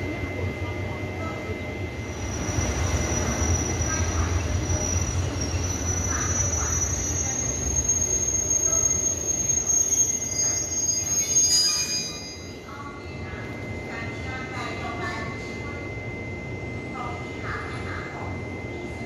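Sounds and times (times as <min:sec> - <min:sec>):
low train rumble: 0:00.0 - 0:19.0
train wheels squealing: 0:02.1 - 0:14.0.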